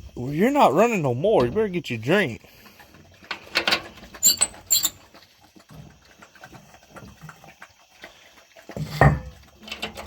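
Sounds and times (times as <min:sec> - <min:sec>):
dogs lapping water: 0:01.9 - 0:10.0.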